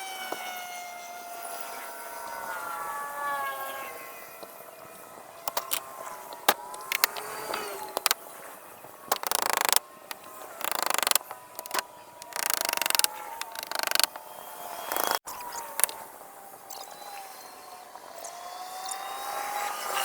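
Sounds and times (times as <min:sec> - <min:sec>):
rattling mechanical bursts: 0:05.5 - 0:08.2, 0:09.1 - 0:14.2, 0:14.8 - 0:15.2
sharp clicks: 0:05.5 - 0:08.2, 0:09.1 - 0:14.2, 0:14.9 - 0:16.0.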